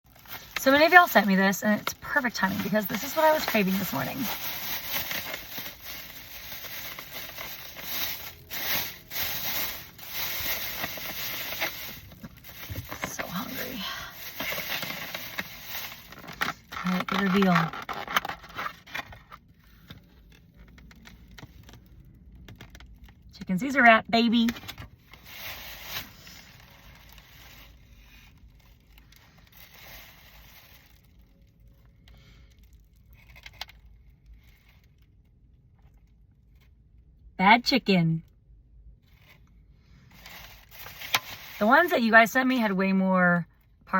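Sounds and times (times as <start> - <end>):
food packaging crinkling and scraping: 0.1 - 23.1, 24.6 - 31.9, 32.5 - 35.1, 40.1 - 41.8.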